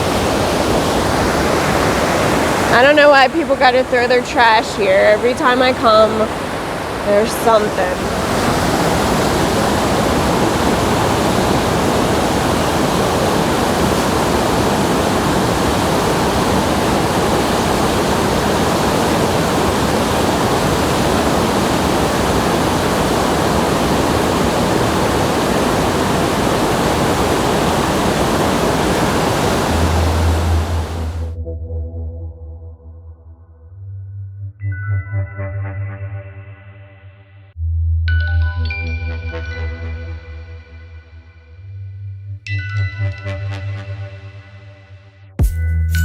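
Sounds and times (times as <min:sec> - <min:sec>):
waterfall rushing: 0:00.0 - 0:31.3.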